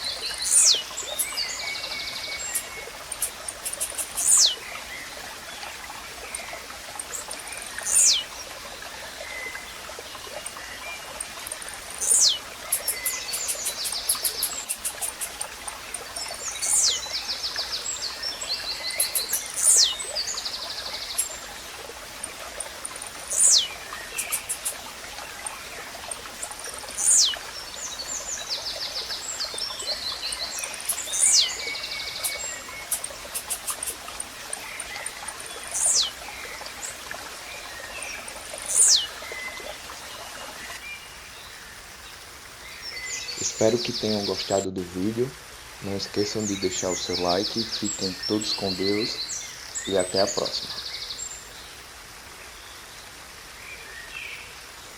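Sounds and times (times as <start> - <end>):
small birds chirping trills: 0.0 - 51.8
running water: 0.0 - 54.9
bird call sweeping downward: 2.5 - 4.6, 7.9 - 8.2, 12.0 - 15.4, 23.3 - 24.8.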